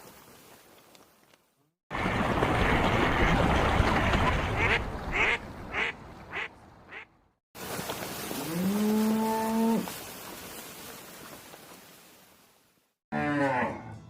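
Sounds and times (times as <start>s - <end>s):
ducks quacking: 4.5s - 7.1s.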